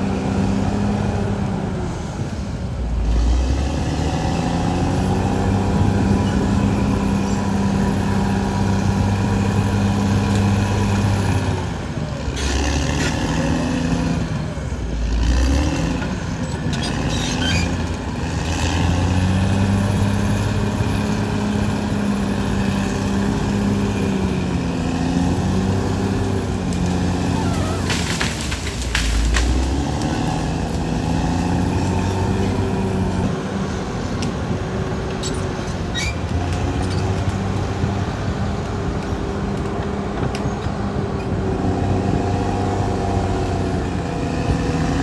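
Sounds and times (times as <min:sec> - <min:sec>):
bulldozer diesel engine running: 0:00.0 - 0:45.0.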